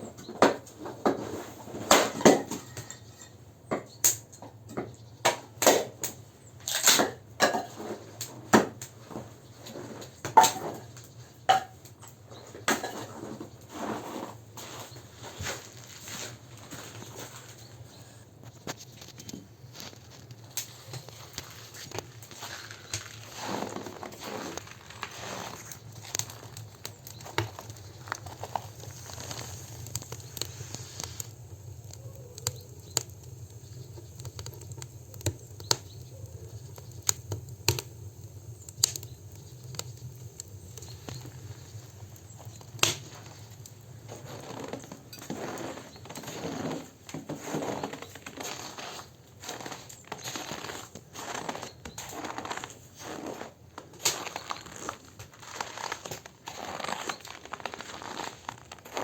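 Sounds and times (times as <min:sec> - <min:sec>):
campfire crackling and popping: 0:00.4 - 0:03.1, 0:03.7 - 0:14.6, 0:15.4 - 0:59.0
footsteps crunching in snow: 0:13.1 - 0:31.2, 0:41.4 - 0:59.0.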